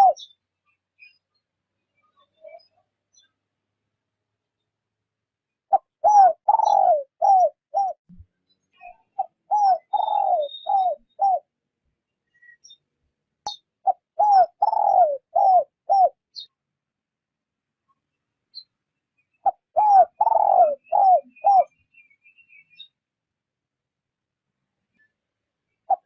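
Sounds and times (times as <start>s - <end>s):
dove cooing: 0.0s - 0.3s, 5.7s - 8.0s, 9.2s - 11.5s, 13.8s - 16.2s, 19.4s - 21.7s.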